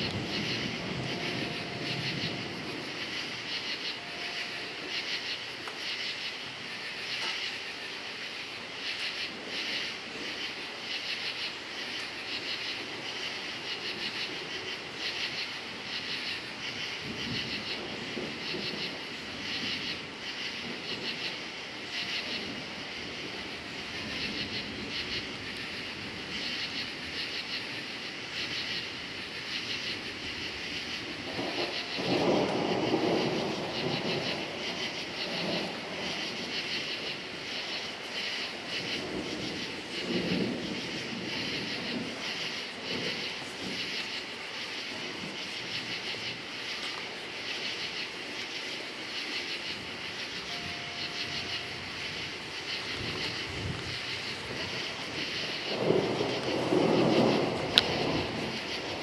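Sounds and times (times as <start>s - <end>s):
thunder rumbling: 0.0s - 7.9s, 11.2s - 46.7s, 49.6s - 59.0s
crickets chirping: 0.0s - 59.0s.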